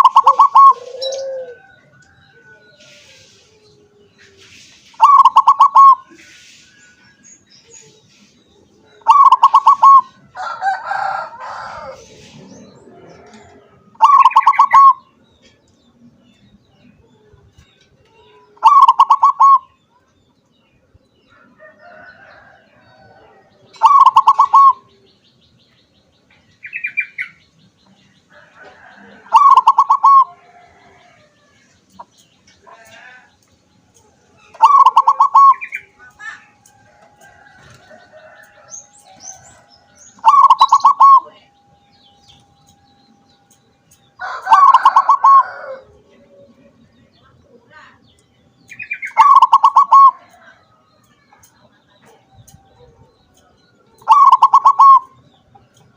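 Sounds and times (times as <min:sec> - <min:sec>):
dove cooing: 0:00.0 - 0:04.4, 0:05.0 - 0:06.2, 0:08.9 - 0:15.0, 0:18.3 - 0:19.7, 0:23.0 - 0:24.9, 0:28.7 - 0:31.2, 0:34.5 - 0:36.5, 0:40.2 - 0:41.4, 0:44.2 - 0:46.4, 0:49.2 - 0:50.2, 0:54.0 - 0:55.2.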